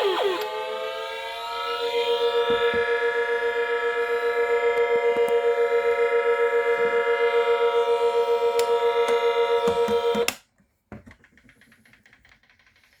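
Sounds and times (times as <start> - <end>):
pulsing buzzy electronic tone: 0.0 - 10.1.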